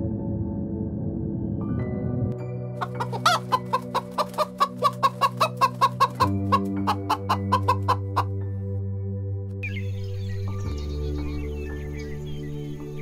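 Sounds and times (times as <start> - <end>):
soft music with held notes: 0.0 - 13.0
hens clucking: 2.8 - 8.4.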